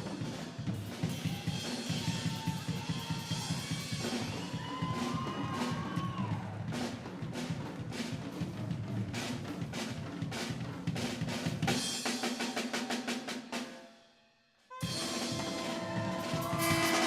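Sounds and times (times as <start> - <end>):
drum roll: 0.0 - 13.8, 14.8 - 17.0
band playing sustained chords: 14.8 - 17.0.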